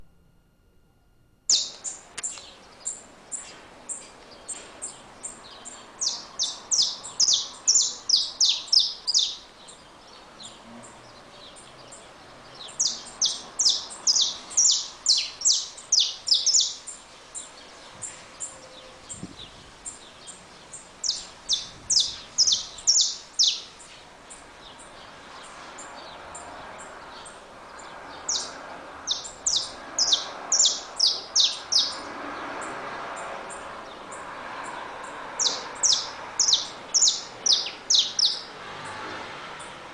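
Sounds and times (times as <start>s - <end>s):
finch singing chip notes: 0.0s - 4.1s.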